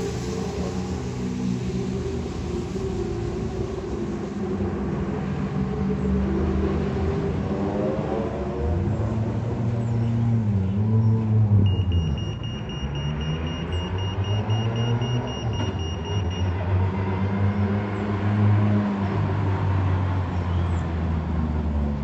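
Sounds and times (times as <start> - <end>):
rally car engine revving: 4.4 - 22.0
high electronic tone pulsing: 11.6 - 16.6.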